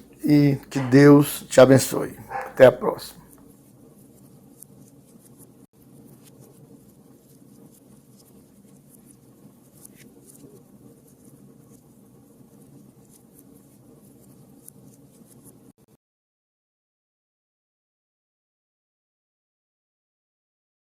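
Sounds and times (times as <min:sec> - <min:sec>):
small clicks and scratches: 0:03.3 - 0:15.7.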